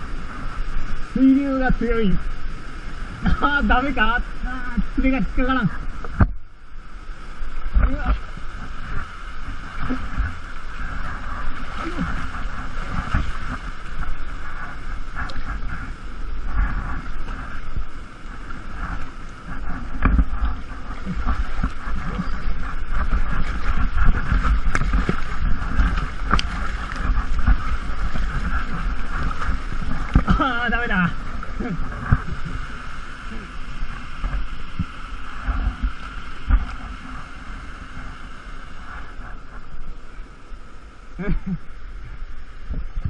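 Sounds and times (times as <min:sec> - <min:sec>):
rushing waterfall: 0:00.0 - 0:43.0.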